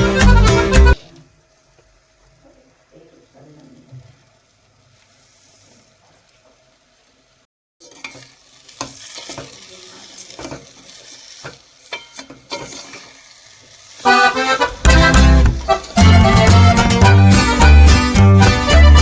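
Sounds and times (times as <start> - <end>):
loud music with a beat: 0.0 - 1.0, 14.3 - 19.0
food sizzling in a pan: 0.9 - 17.7
metal spatula scraping: 7.8 - 16.3.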